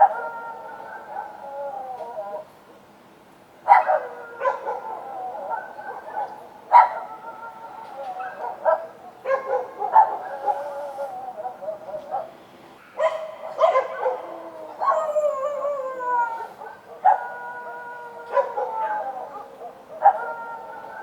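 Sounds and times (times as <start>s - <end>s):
dogs barking: 0.0s - 1.4s, 3.7s - 7.4s, 8.2s - 15.5s, 16.4s - 21.0s
dogs howling: 0.0s - 2.5s, 3.7s - 12.4s, 13.0s - 21.0s.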